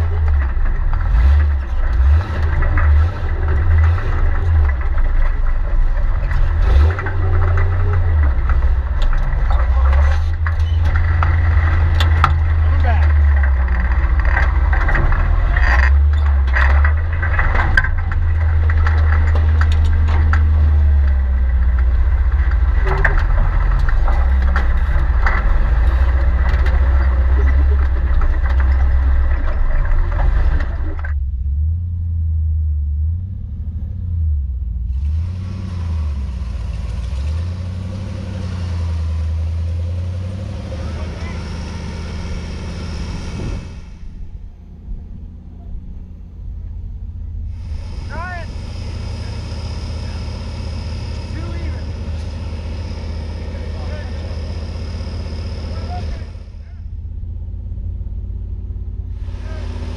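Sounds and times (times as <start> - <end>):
truck engine rumbling: 0.0 - 59.9.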